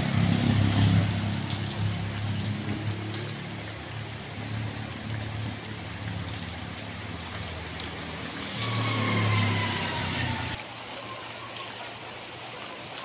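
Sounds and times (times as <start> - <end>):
steady rain falling: 0.0 - 13.0
passing vehicle whine: 8.0 - 10.6.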